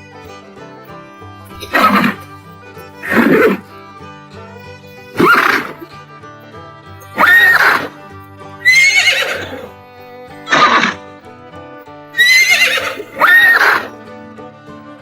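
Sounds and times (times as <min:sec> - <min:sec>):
background music: 0:00.0 - 0:15.0
horses neighing: 0:01.5 - 0:02.3, 0:03.0 - 0:03.7, 0:05.1 - 0:05.9, 0:07.2 - 0:08.0, 0:08.6 - 0:09.8, 0:10.4 - 0:11.1, 0:12.2 - 0:14.0.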